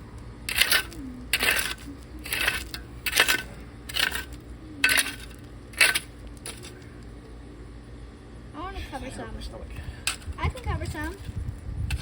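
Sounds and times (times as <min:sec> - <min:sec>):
shovel scraping gravelly soil: 0:00.5 - 0:06.8, 0:10.1 - 0:12.0.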